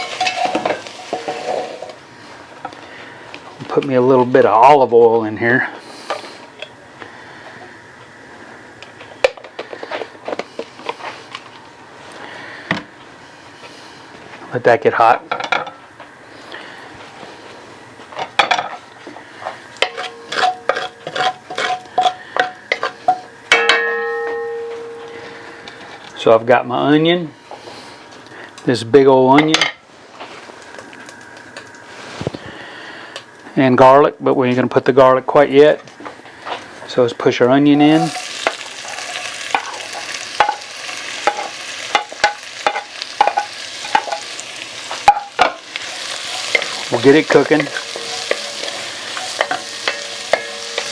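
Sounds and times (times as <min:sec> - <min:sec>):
loud ringing pot clang: 0:00.0 - 0:01.8, 0:19.8 - 0:20.9, 0:22.4 - 0:25.7, 0:47.4 - 0:50.9
metal utensil clinking on pot: 0:00.0 - 0:01.9, 0:19.8 - 0:25.3, 0:38.0 - 0:40.6, 0:45.0 - 0:50.9
onion sizzling in oil: 0:00.0 - 0:03.4, 0:16.2 - 0:26.2, 0:37.6 - 0:50.9.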